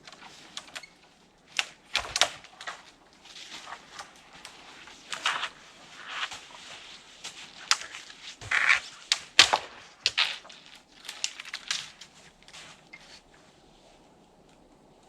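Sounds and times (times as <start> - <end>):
snow crunching and snapping: 1.4 - 15.0.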